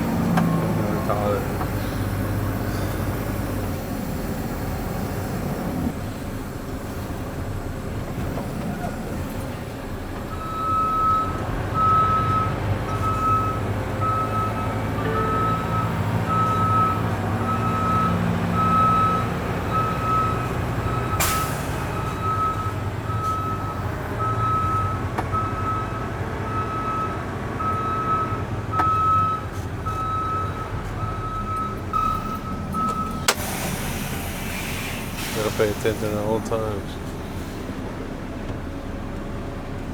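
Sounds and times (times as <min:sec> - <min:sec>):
diesel truck engine running: 0:00.0 - 0:39.9
backup alarm beeping: 0:10.3 - 0:33.5.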